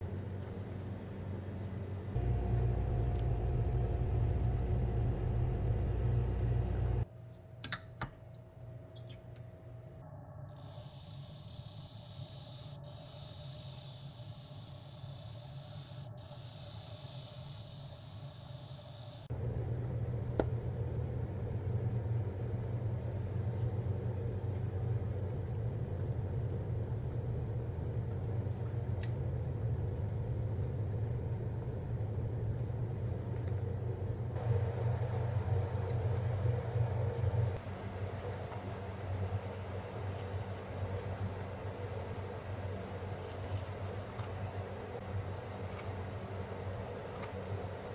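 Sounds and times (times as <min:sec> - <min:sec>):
motor low hum: 0:00.0 - 0:07.1, 0:10.0 - 0:47.9
electric motor humming: 0:02.2 - 0:07.0, 0:10.6 - 0:19.3
blade grinding hiss: 0:10.6 - 0:19.3.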